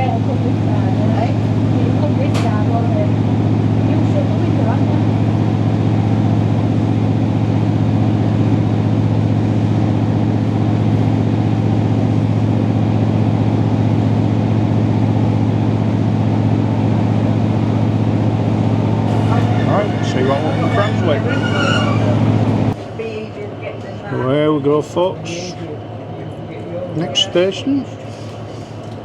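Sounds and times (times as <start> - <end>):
train engine drone: 0.0 - 29.0
wheels rumbling on track: 0.0 - 29.0.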